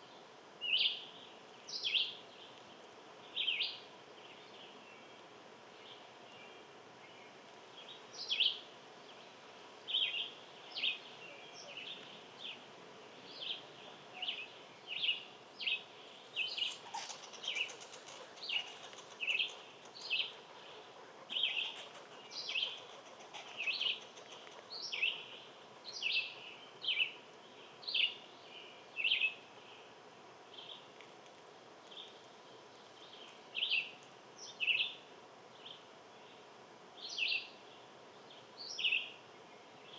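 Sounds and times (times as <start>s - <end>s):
small bird chirping: 14.2s - 27.2s.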